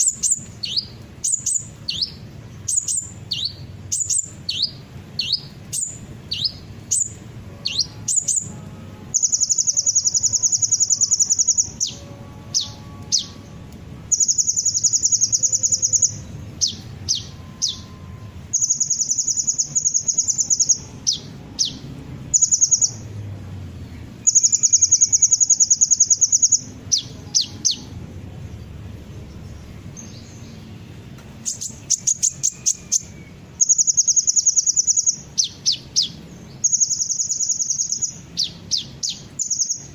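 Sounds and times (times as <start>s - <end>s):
sunbird buzzing trills: 0.0s - 23.2s.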